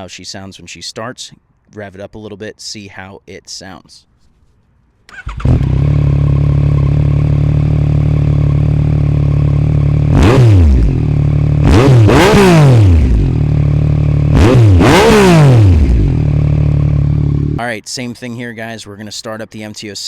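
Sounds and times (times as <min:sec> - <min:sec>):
motorcycle engine revving: 0:05.1 - 0:17.6
motorcycle engine idling: 0:05.2 - 0:11.7, 0:12.9 - 0:14.4, 0:15.6 - 0:17.6.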